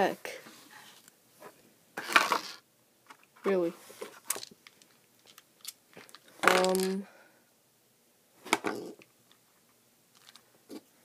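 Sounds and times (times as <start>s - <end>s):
plastic puzzle pieces clicking: 4.3s - 7.0s, 10.1s - 10.4s.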